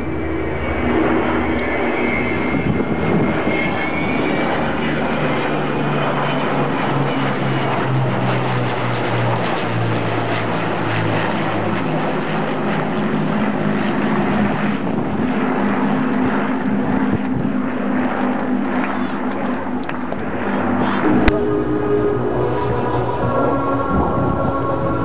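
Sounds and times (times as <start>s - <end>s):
aircraft engines roaring: 0.0s - 25.0s.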